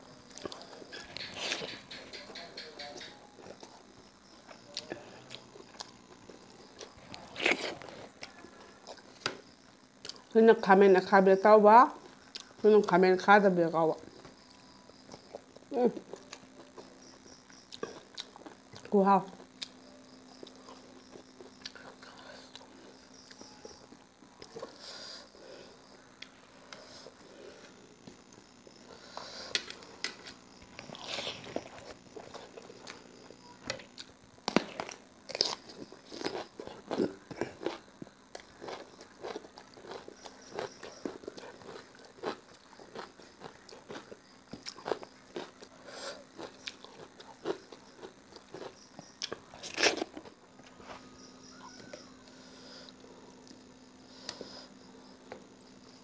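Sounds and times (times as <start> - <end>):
person chewing with mouth noises: 17.7 - 18.9, 33.7 - 50.4
crunching bites of cucumber: 46.4 - 50.3.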